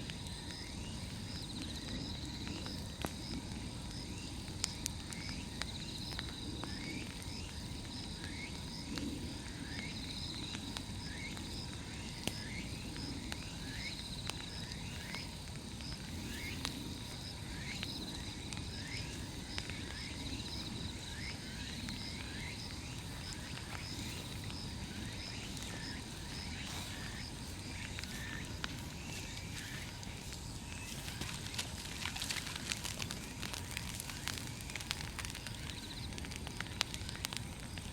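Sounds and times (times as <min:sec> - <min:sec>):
bonfire rushing: 0:00.0 - 0:37.9
insects chirping: 0:00.0 - 0:37.9
high insect trill: 0:05.2 - 0:37.9
wood popping: 0:14.4 - 0:37.9.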